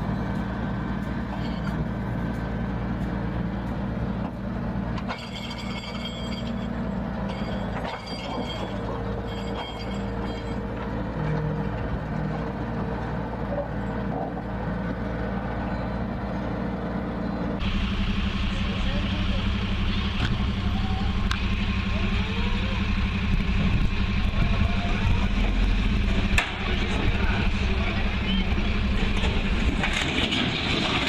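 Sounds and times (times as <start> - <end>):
truck engine running: 0.0 - 31.0
high-pitched squeals: 5.1 - 11.4.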